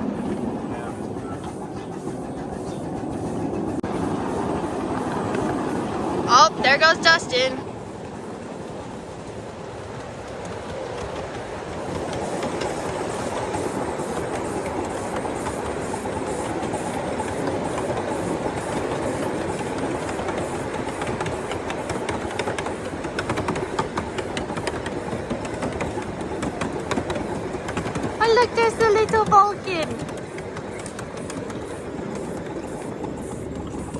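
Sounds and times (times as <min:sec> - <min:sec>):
train wheels rumbling on rail: 0:00.0 - 0:33.9
clicks over rail joints: 0:19.5 - 0:33.9.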